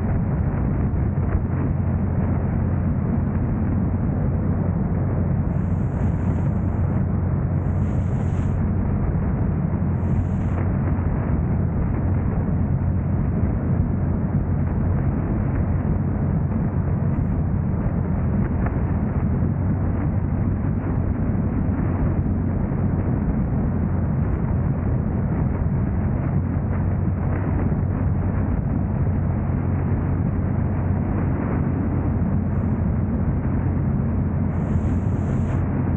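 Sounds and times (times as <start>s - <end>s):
car driving rumble: 0.0s - 35.9s.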